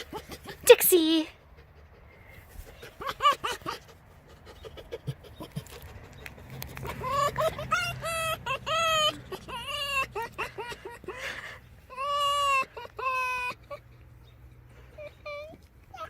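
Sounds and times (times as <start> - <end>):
fox cackling yelps: 0.0 - 0.7, 1.4 - 14.0.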